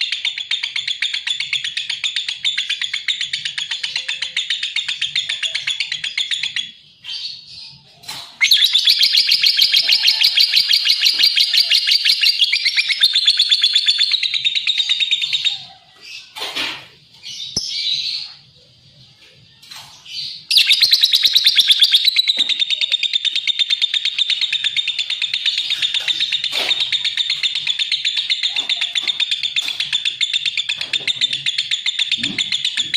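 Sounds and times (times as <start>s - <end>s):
lovebird shrill chirps: 8.4s - 15.6s, 20.2s - 32.9s.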